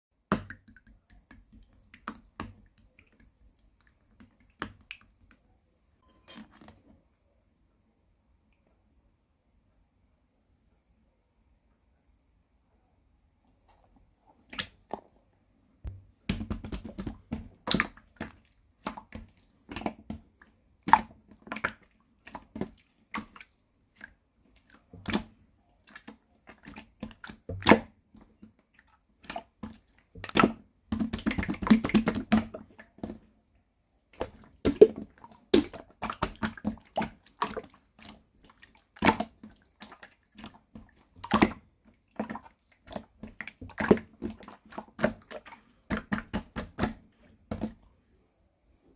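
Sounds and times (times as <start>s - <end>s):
slime squelching: 0.2s - 5.5s, 13.6s - 15.2s, 15.9s - 33.4s, 34.1s - 47.9s.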